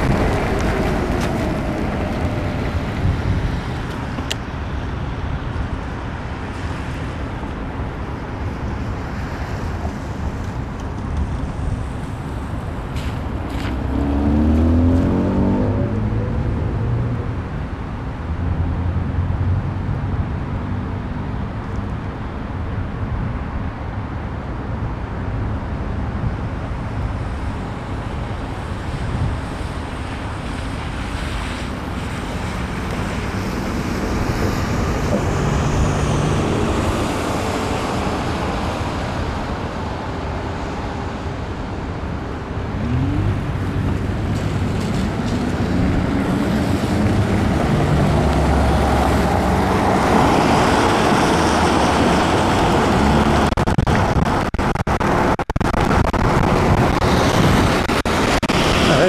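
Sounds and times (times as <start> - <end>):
wind on microphone: 0.0 - 7.4, 26.0 - 59.0
cars passing with tyre hiss: 0.0 - 59.0.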